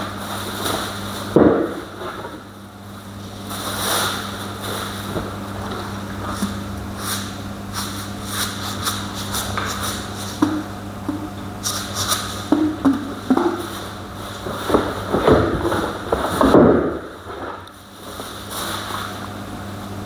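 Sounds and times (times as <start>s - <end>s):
objects knocking and scraping: 9.0s - 17.7s.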